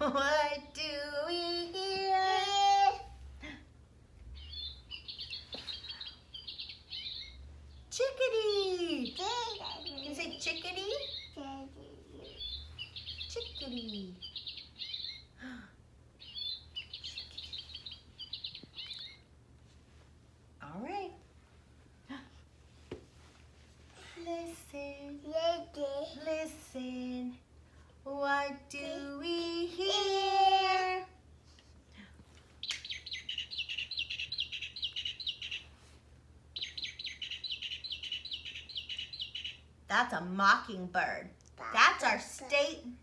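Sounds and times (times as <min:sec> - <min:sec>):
mockingbird singing: 0:04.3 - 0:07.9, 0:08.5 - 0:15.4, 0:16.2 - 0:19.3, 0:32.6 - 0:35.7, 0:36.6 - 0:39.8
chickadee calling: 0:04.4 - 0:07.5, 0:09.0 - 0:11.6, 0:12.2 - 0:15.3, 0:16.2 - 0:19.2, 0:32.6 - 0:35.7, 0:36.6 - 0:39.7.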